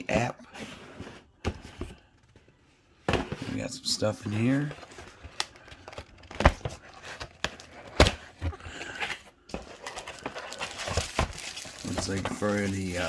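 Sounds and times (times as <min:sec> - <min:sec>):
packaging rustling: 0:04.4 - 0:13.0.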